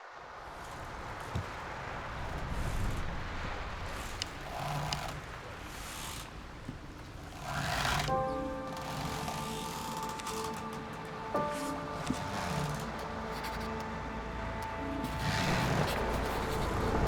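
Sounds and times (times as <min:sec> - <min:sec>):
wind: 0:00.0 - 0:12.0
sea rumbling: 0:00.3 - 0:17.0
creaks and scrapes: 0:00.4 - 0:17.0
soft music tones: 0:07.1 - 0:17.0.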